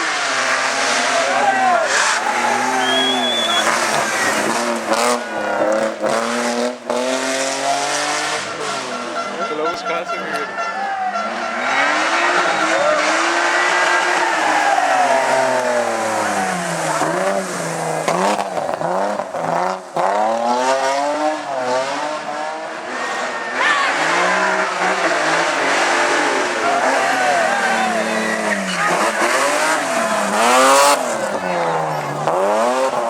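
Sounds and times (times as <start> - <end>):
rally car engine revving: 0.0 - 33.0
tyre noise: 0.0 - 33.0.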